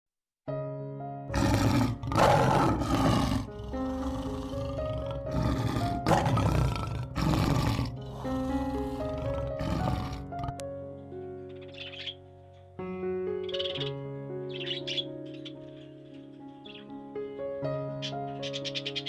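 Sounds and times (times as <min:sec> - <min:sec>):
sustained background music: 0:00.5 - 0:19.0
wild animal roaring: 0:01.3 - 0:10.6.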